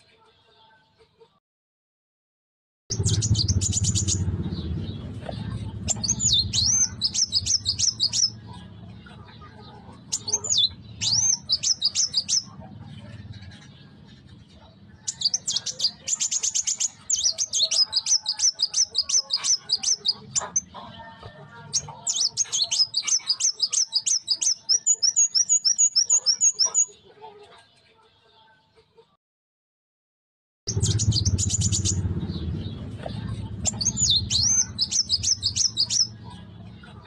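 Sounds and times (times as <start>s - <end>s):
bird chirping rapidly: 2.9s - 8.7s, 9.4s - 20.9s, 21.7s - 26.9s, 30.7s - 37.0s.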